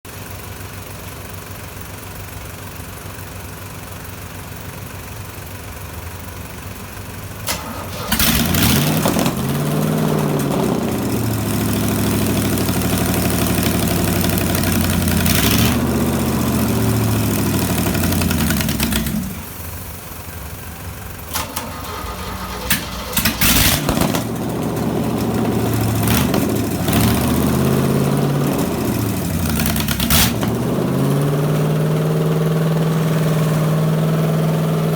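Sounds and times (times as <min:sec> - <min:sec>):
boat engine revving: 0:07.5 - 0:19.9, 0:21.3 - 0:34.9.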